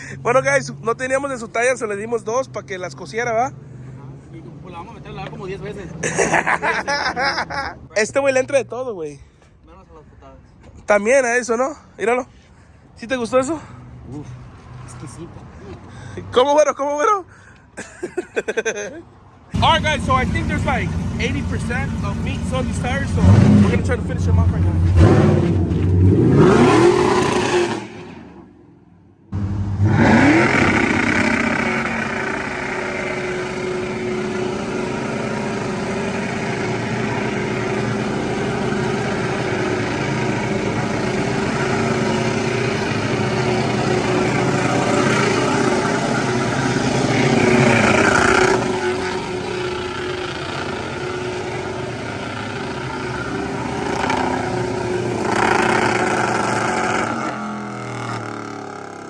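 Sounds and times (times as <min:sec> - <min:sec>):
engine revving: 0:19.6 - 0:28.6, 0:29.3 - 0:59.0
tires spinning on pavement: 0:19.6 - 0:59.0.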